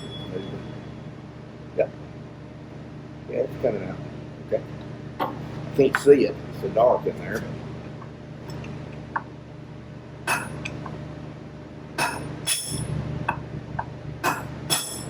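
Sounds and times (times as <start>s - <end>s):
hammer striking steel: 10.3s - 10.8s, 12.0s - 13.0s, 14.2s - 15.0s.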